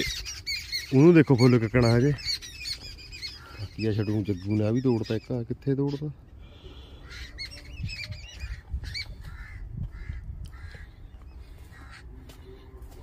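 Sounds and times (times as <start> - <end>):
birds chirping: 0.0 - 13.0
wind rumble on microphone: 7.5 - 11.9.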